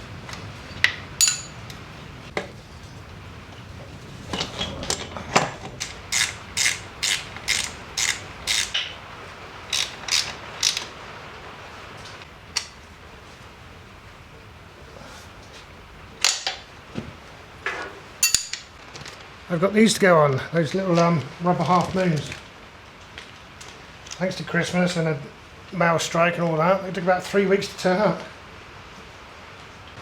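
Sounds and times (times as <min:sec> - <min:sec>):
metallic knocks: 0:00.8 - 0:01.8, 0:18.2 - 0:18.7
ratchet wrench clicking: 0:05.8 - 0:08.8, 0:09.7 - 0:10.9.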